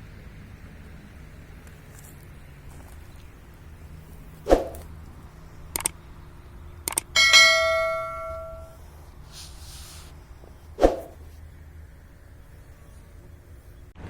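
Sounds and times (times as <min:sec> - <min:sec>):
ringing metallic strike: 0:07.2 - 0:08.8.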